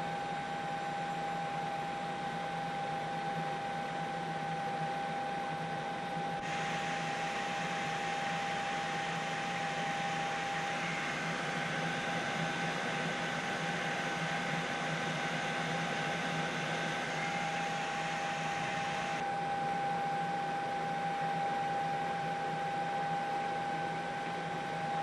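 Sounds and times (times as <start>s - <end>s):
helicopter cabin hiss and whine: 6.4s - 19.2s.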